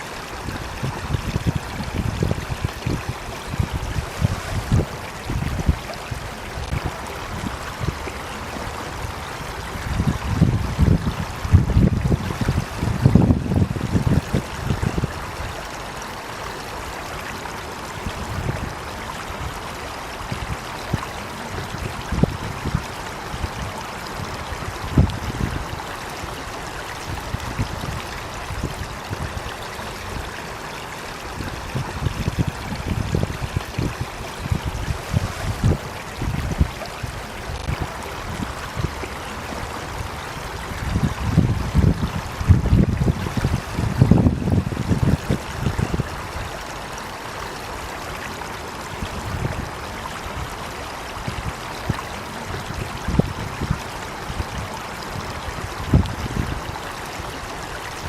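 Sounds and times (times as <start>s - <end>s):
running water rushing: 0.0s - 58.0s.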